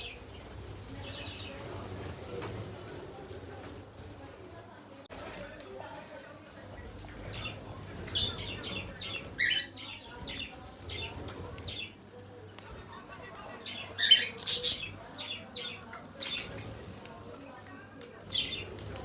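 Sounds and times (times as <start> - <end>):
parrot scratchy calls: 13.7 - 16.6.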